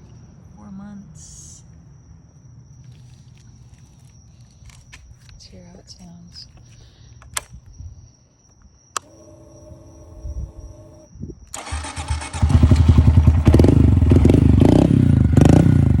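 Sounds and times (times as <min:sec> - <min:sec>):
faint steady whine: 0:00.0 - 0:11.5
motorcycle engine starting and revving: 0:09.0 - 0:16.0.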